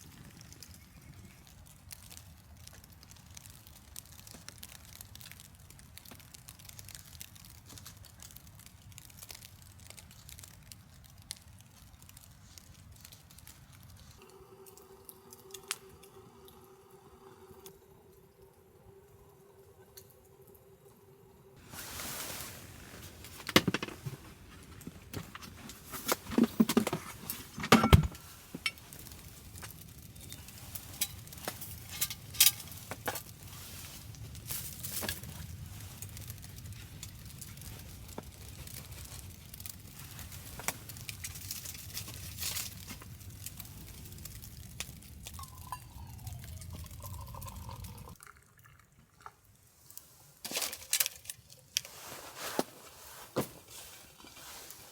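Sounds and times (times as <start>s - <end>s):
cookware clinking and knocking: 27.6s - 28.2s
liquid being poured: 45.3s - 49.6s.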